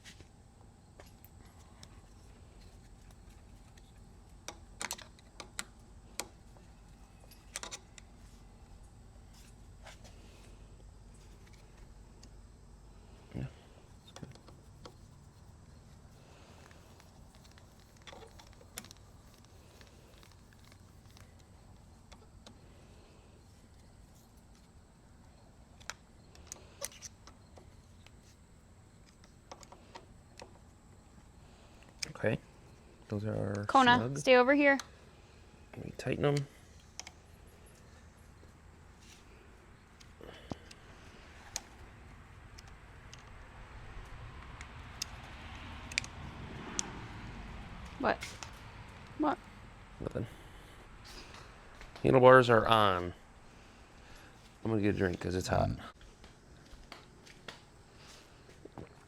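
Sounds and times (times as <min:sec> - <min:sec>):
faint room hum: 0:00.0 - 0:46.2, 0:47.2 - 0:59.0
light clicks and taps of bike parts: 0:36.3 - 0:39.3, 0:42.5 - 0:43.4, 0:44.0 - 0:47.0
clicks and taps of bike parts: 0:44.4 - 0:47.0.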